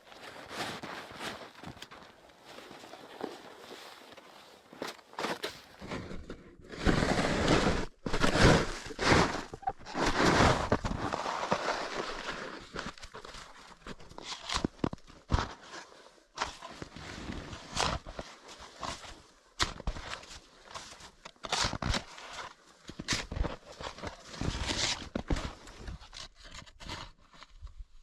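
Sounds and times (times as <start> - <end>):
snow crunching and scraping: 0.0 - 14.6.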